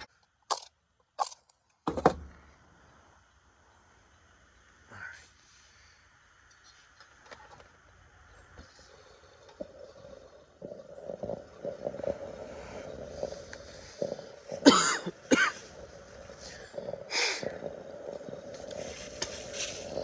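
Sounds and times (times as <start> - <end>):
steady low hum: 1.8 - 20.0
man coughing: 14.6 - 15.7.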